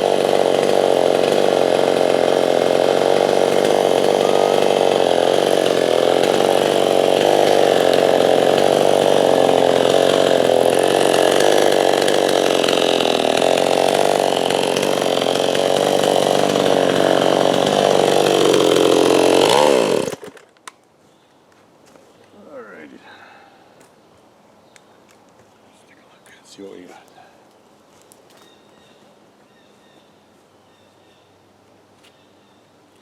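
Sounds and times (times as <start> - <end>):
chainsaw cutting log: 0.0 - 20.6.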